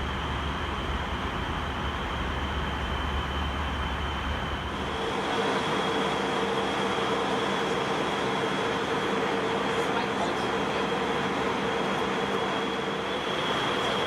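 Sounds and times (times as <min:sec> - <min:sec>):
mid-pitched hum: 0:00.0 - 0:05.0
aircraft cabin engine and airflow noise: 0:00.0 - 0:14.0.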